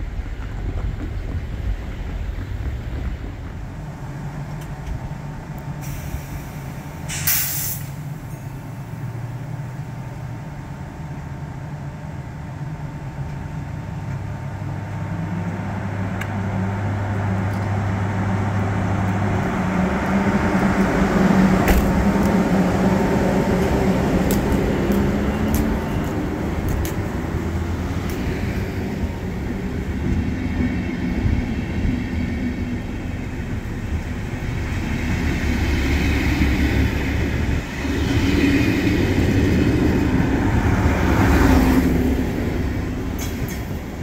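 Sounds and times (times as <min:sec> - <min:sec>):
train running noise: 0:00.0 - 0:44.0
air release hiss: 0:05.8 - 0:08.1.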